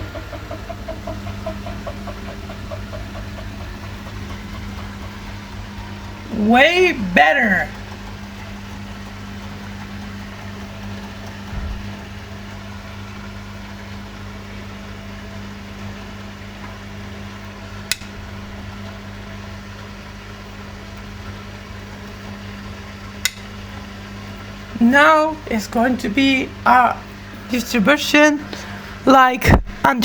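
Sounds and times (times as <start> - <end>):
washing machine humming: 0.0 - 30.0
low thump: 11.5 - 11.9
sharp clicks: 17.9 - 18.2.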